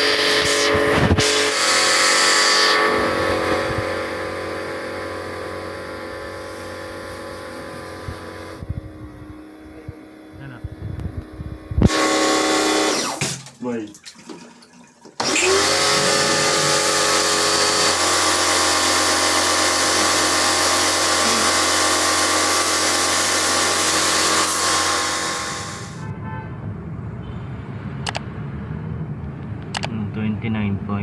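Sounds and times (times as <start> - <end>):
electric motor whine: 0.0 - 13.2, 15.2 - 26.0.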